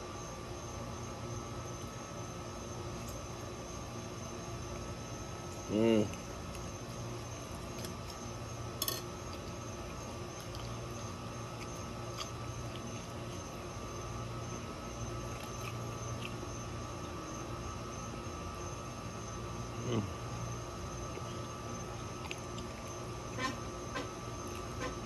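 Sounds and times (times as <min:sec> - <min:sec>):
steady low hum: 0:00.0 - 0:25.0
chewing and lip-smacking: 0:09.2 - 0:13.6, 0:15.0 - 0:17.2, 0:21.0 - 0:23.5.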